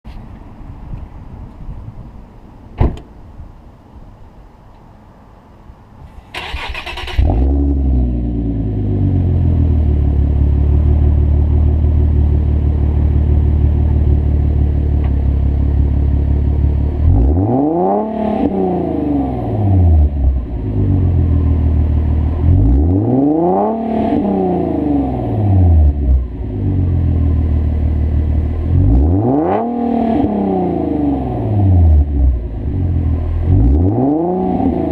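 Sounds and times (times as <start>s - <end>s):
car engine cranking and idling: 6.2s - 34.9s
car engine revving: 6.4s - 14.9s, 15.8s - 34.9s.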